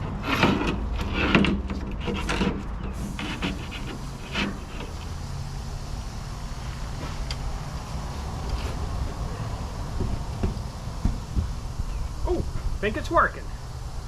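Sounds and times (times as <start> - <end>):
scraping knocks: 0.0 - 5.2, 8.4 - 12.8
low engine hum: 2.7 - 14.0.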